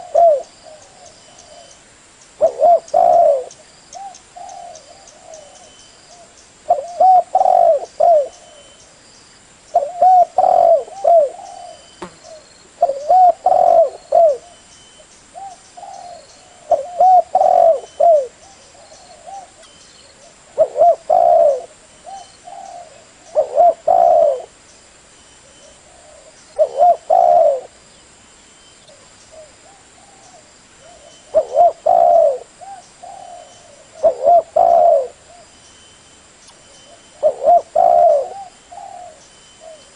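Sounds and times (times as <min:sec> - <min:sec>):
dove cooing: 0:00.0 - 0:01.8, 0:02.4 - 0:08.8, 0:09.7 - 0:14.6, 0:15.4 - 0:24.6, 0:25.4 - 0:27.8, 0:28.9 - 0:35.5, 0:36.9 - 0:39.9.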